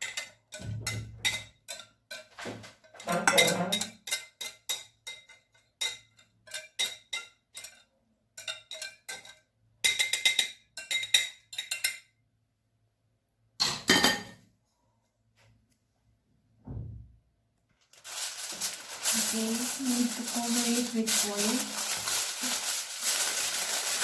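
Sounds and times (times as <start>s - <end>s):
utensil scraping bowl and pan: 0.0s - 11.1s, 18.0s - 24.0s
utensil clinking against bowl: 0.0s - 12.1s.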